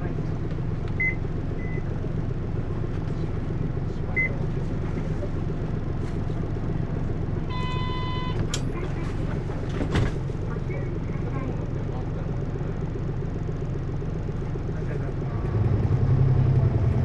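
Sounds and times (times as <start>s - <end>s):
bus engine rumble: 0.0s - 17.0s
short electronic beeps: 7.5s - 8.4s.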